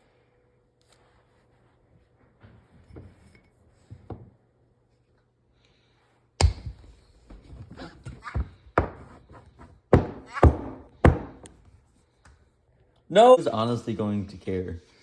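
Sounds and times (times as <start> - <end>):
knocks and thuds on a counter: 8.1 - 11.4.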